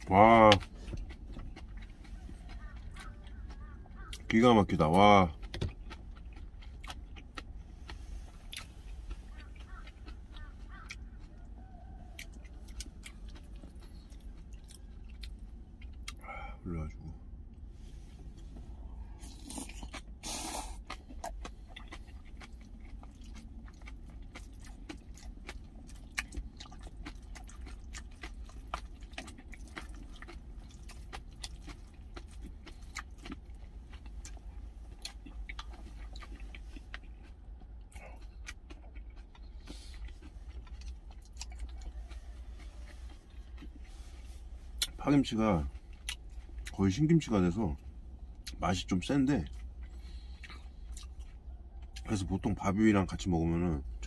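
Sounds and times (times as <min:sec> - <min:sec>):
close-up chewing: 0:00.0 - 0:54.0
steady low hum: 0:00.0 - 0:54.0
wet mouth clicks and crunches: 0:19.2 - 0:45.0.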